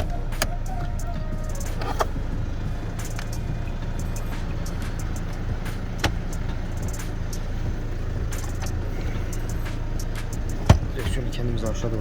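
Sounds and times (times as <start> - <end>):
clicks and knocks in cabin: 0.0 - 0.6, 5.1 - 6.4, 10.3 - 11.3
car engine idling: 0.0 - 12.0.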